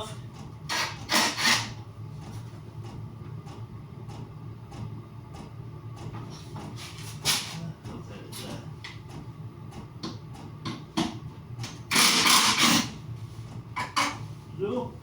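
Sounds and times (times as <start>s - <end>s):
harsh scraping rasp: 0.7s - 1.8s, 11.9s - 13.0s.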